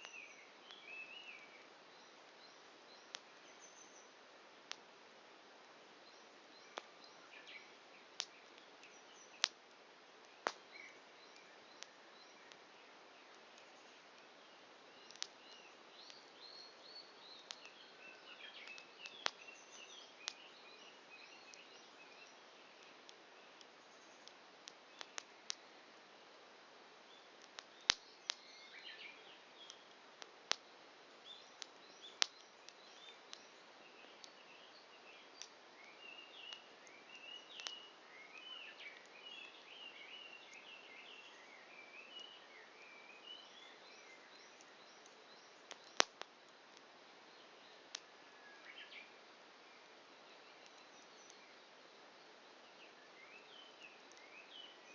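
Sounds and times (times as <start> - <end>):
campfire crackling: 0.0 - 42.8, 43.4 - 54.9
fire popping: 2.2 - 3.6, 4.5 - 5.9, 6.6 - 16.4, 17.3 - 25.8, 27.0 - 28.5, 29.4 - 38.0, 44.5 - 47.0, 47.9 - 48.1
birds chirping: 10.4 - 25.8, 30.5 - 46.3.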